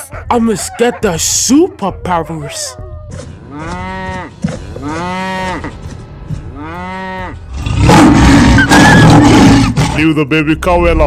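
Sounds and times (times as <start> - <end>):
loud rough roar: 7.5 - 10.0.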